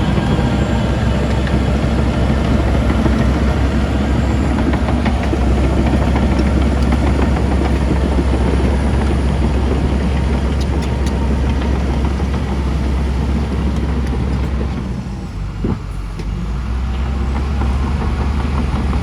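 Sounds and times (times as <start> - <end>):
diesel engine rumbling: 0.0 - 19.0.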